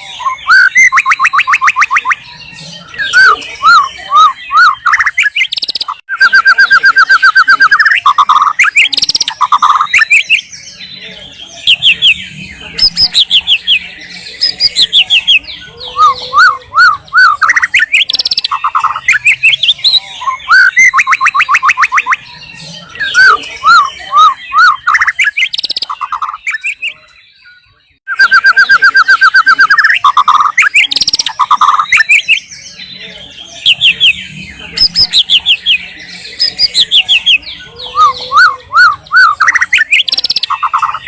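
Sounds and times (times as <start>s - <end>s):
bird singing varied song: 0.0s - 41.0s.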